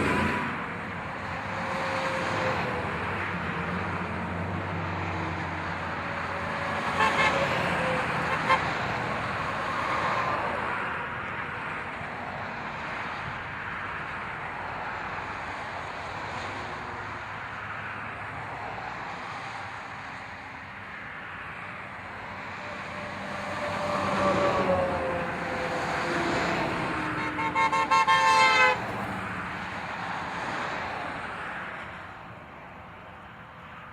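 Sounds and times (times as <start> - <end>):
truck engines running: 0.0 - 33.9
horn short blasts: 6.9 - 7.5, 27.2 - 28.8.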